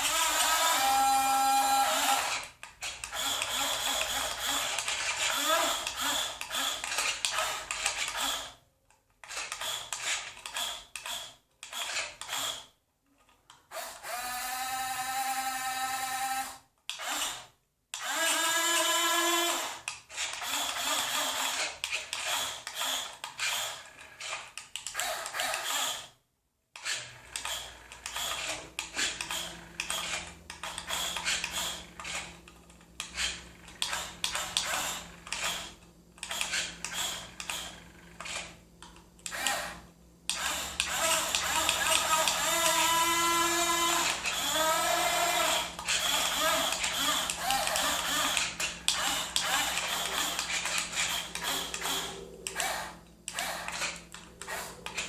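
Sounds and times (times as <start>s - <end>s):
model truck motors whirring: 0.0s - 8.6s, 26.8s - 55.0s.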